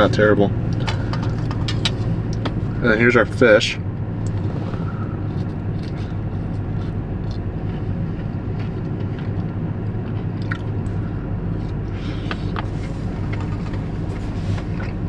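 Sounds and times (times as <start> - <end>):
low mechanical hum: 0.0 - 15.0
quiet chewing: 4.2 - 15.0.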